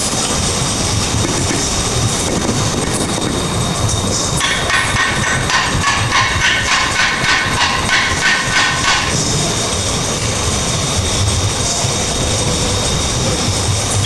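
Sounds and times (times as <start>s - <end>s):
steady noisy rumble: 0.0s - 14.0s
hammer blows ringing on metal: 4.4s - 9.4s.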